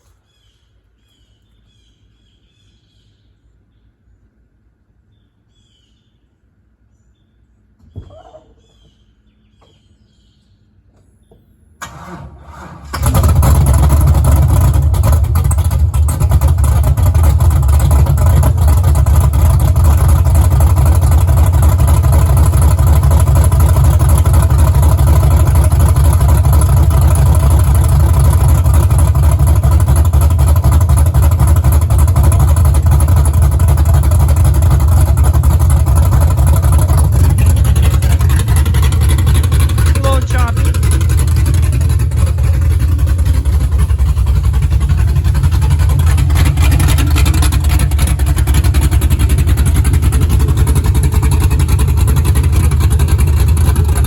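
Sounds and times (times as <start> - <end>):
thump: 7.8 - 9.0
car engine idling loudly: 11.8 - 54.0
starter motor cranking: 11.8 - 54.0.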